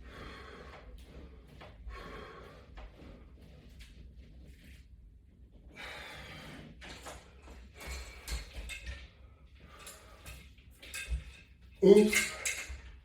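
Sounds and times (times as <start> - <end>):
person breathing hard: 0.0 - 3.5, 5.7 - 6.8.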